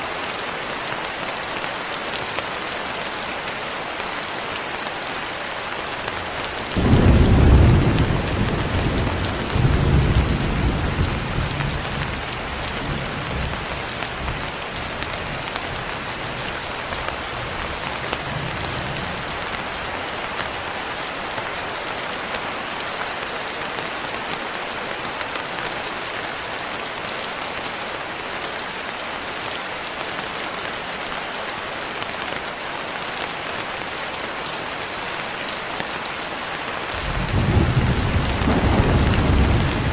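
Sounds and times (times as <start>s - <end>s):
thunder rumbling: 6.8s - 13.5s, 37.0s - 39.9s
rain hissing: 36.9s - 39.9s.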